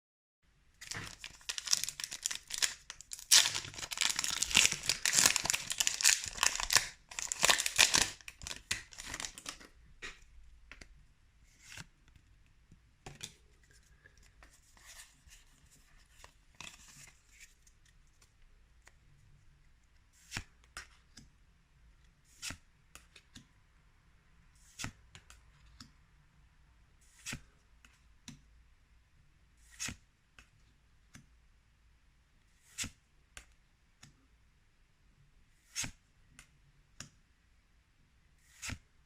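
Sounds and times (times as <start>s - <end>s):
foil wrapper tearing and crinkling: 0.8s - 9.6s
cards rustling and clicking: 0.8s - 10.9s.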